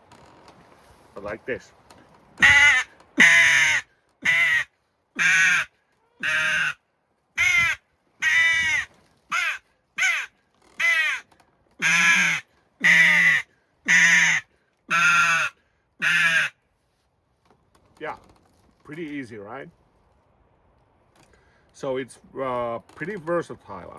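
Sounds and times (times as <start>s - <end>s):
crow call caws: 2.4s - 6.8s, 7.4s - 16.6s.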